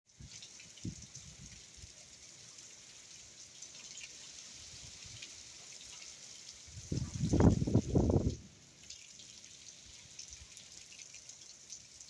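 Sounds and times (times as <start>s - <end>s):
steady rain falling: 0.1s - 12.0s
wind gusts buffeting microphone: 6.7s - 8.4s.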